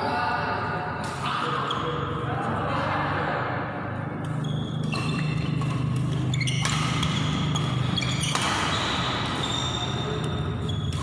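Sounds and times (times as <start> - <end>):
shoes squeaking on court floor: 1.5 - 2.3, 4.2 - 11.0
rackets hitting shuttlecock: 4.2 - 11.0.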